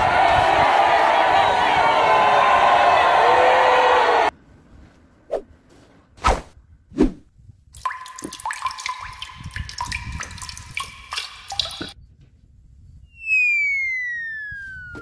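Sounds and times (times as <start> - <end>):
water trickling and splashing: 7.8 - 12.0
whistle-like tone gliding down: 13.0 - 15.0.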